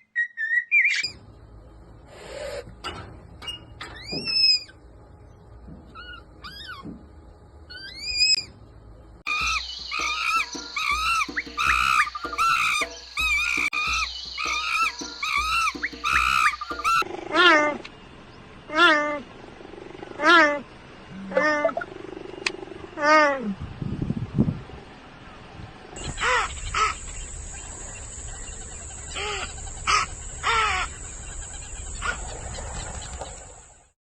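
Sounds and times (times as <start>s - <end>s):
chorus of animal calls: 5.9s - 7.0s, 7.7s - 8.5s, 9.3s - 17.9s, 18.6s - 23.7s, 26.0s - 33.8s
high animal calls: 5.9s - 7.0s, 7.7s - 8.5s, 9.3s - 17.9s, 18.7s - 23.6s, 26.0s - 33.7s.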